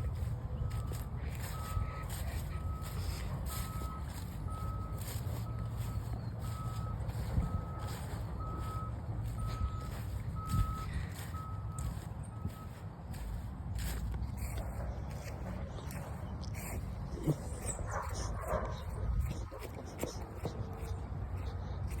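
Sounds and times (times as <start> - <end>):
reversing alarm beeping: 0.0 - 16.1
low engine rumble: 0.0 - 22.0.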